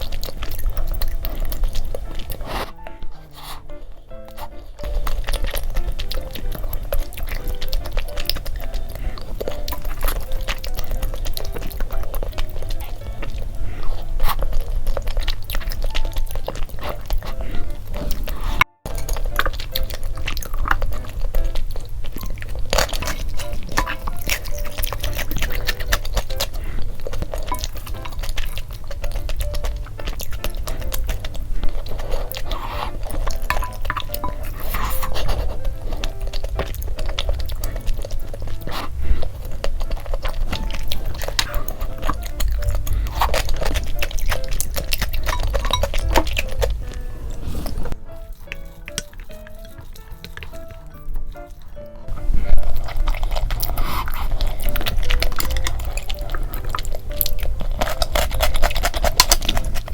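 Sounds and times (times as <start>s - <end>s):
chewing and slurping noodles: 0.0s - 59.9s
light background music: 0.0s - 59.9s
mouth smacks and clicks: 0.0s - 59.9s.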